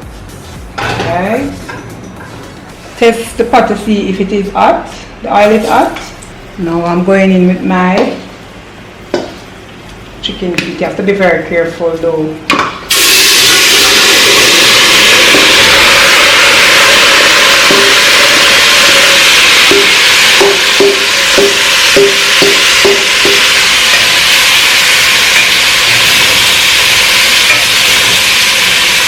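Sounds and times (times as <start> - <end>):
food sizzling in hot oil: 12.9 - 29.0
utensil knocking on pot: 19.7 - 23.6.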